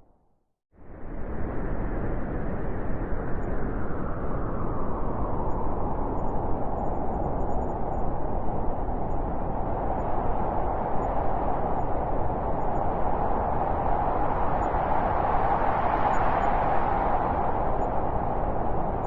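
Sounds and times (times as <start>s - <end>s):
howling storm wind: 0.8s - 19.0s.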